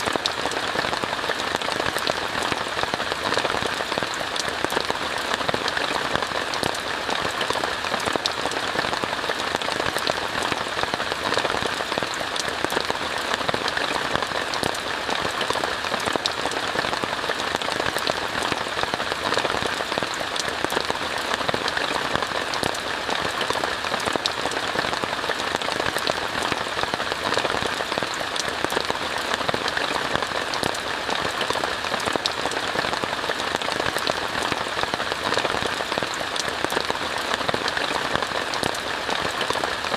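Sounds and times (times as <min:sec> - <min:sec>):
rain falling on a tent: 0:00.0 - 0:39.9.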